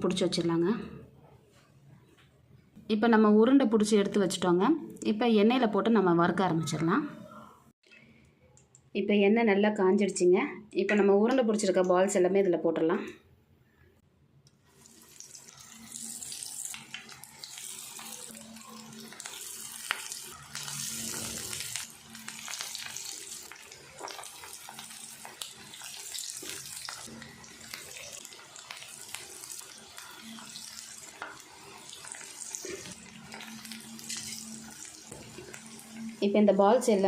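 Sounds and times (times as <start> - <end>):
food deep-frying in hot oil: 14.6 - 37.0.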